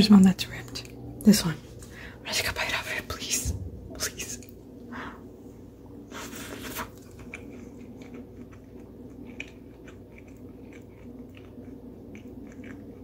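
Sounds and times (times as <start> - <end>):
person biting and chewing muffin: 6.2 - 13.0.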